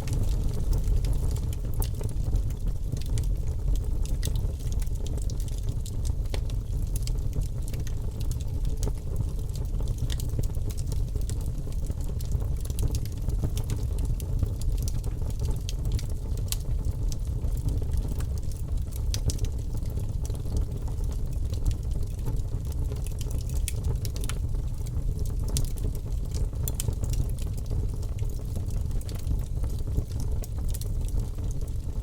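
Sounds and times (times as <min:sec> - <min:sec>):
fire crackling and popping: 0:00.0 - 0:32.0
low rumble of flames: 0:00.0 - 0:32.0.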